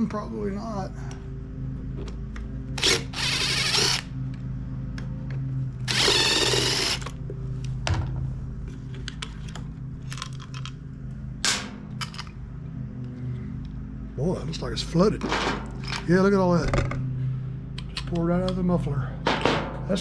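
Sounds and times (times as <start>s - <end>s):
cordless power driver running: 2.6s - 4.4s, 5.8s - 7.3s
tool and parts clicking: 8.9s - 10.8s, 17.8s - 18.6s.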